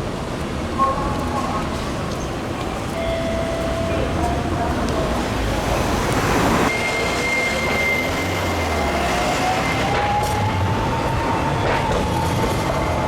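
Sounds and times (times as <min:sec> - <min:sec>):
tram running with whine: 0:00.0 - 0:13.0.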